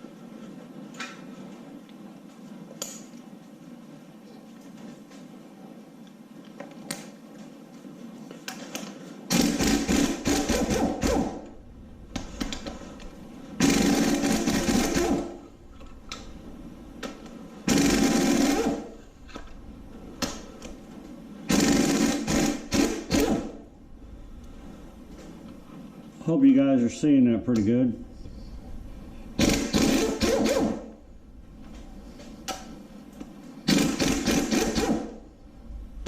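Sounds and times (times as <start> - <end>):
impact wrench hammering: 9.3 - 11.6, 13.6 - 15.4, 17.7 - 19.4, 21.5 - 23.6, 29.4 - 31.0, 33.7 - 35.2.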